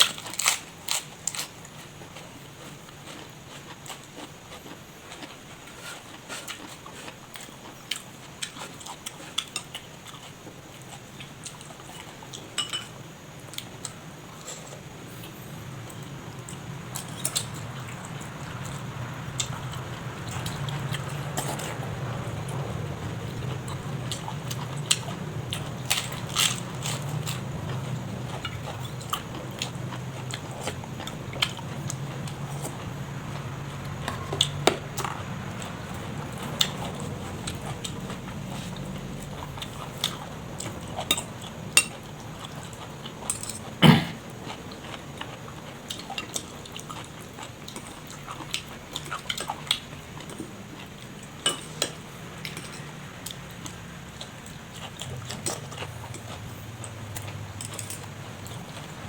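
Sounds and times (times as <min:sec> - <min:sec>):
person chewing and biting: 0:00.2 - 0:01.5, 0:03.1 - 0:10.3, 0:19.4 - 0:33.0
steady low hum: 0:01.1 - 0:59.0.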